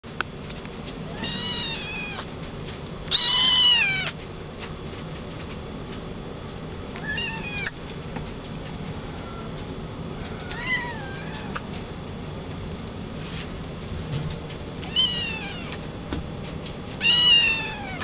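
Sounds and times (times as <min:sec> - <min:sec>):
kitten meowing: 0:01.1 - 0:02.3, 0:03.1 - 0:04.2, 0:07.0 - 0:07.8, 0:10.3 - 0:11.6, 0:14.8 - 0:15.8, 0:17.0 - 0:18.0.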